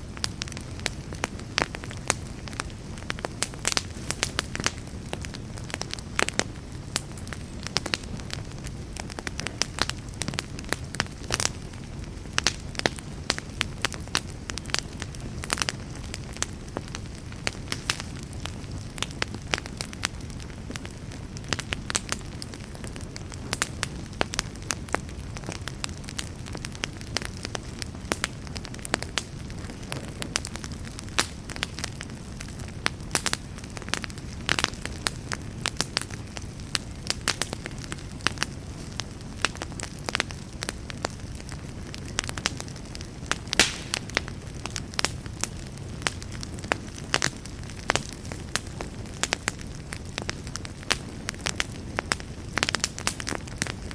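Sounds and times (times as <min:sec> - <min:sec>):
burning wood crackling and popping: 0:00.0 - 0:53.9
campfire low rumble: 0:00.0 - 0:53.9.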